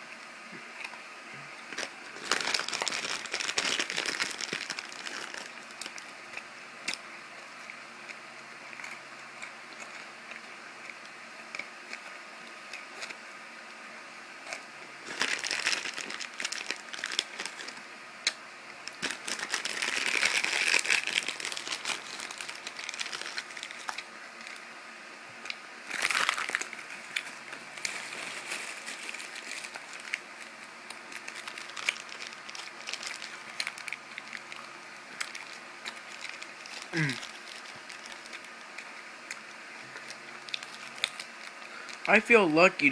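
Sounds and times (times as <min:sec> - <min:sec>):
candy wrappers crinkling: 0:01.7 - 0:07.5, 0:15.0 - 0:17.9, 0:18.9 - 0:24.7, 0:25.8 - 0:42.1.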